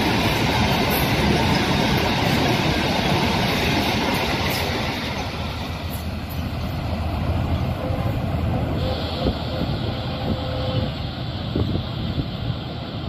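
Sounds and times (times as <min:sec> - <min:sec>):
freight train rolling on rails: 0:00.0 - 0:13.0.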